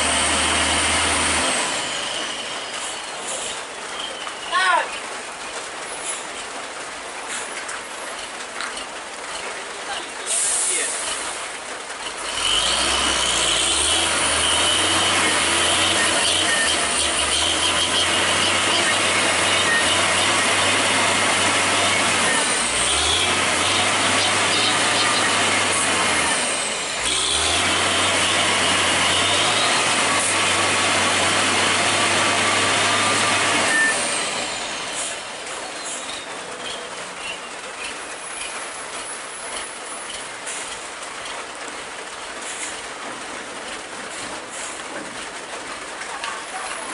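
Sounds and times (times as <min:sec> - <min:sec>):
truck engine under load: 0:00.0 - 0:04.0, 0:05.1 - 0:46.9
road noise: 0:00.0 - 0:46.9.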